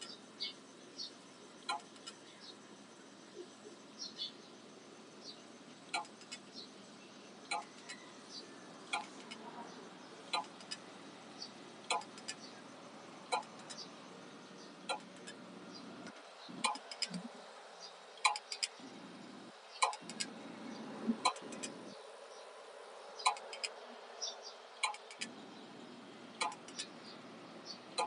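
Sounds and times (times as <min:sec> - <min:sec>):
faint steady hiss: 0:00.0 - 0:28.0
hard disk drive clicking: 0:01.6 - 0:02.2, 0:05.9 - 0:06.4, 0:07.5 - 0:08.1, 0:08.9 - 0:09.4, 0:10.3 - 0:10.9, 0:11.9 - 0:12.5, 0:13.2 - 0:13.9, 0:16.0 - 0:17.5, 0:18.2 - 0:18.9, 0:19.8 - 0:20.5, 0:21.1 - 0:21.9, 0:23.2 - 0:23.8, 0:24.8 - 0:25.4, 0:26.4 - 0:26.9
light ticks: 0:08.9 - 0:09.4, 0:13.3 - 0:13.9, 0:16.1 - 0:17.3, 0:18.2 - 0:18.8, 0:19.8 - 0:20.3, 0:23.2 - 0:23.8, 0:24.8 - 0:25.3, 0:26.4 - 0:26.9.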